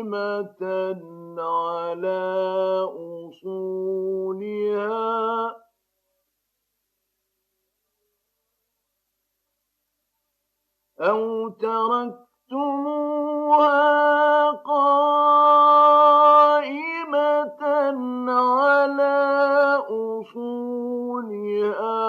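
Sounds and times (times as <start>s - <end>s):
man reciting melodically: 0.0s - 5.6s, 11.0s - 22.0s.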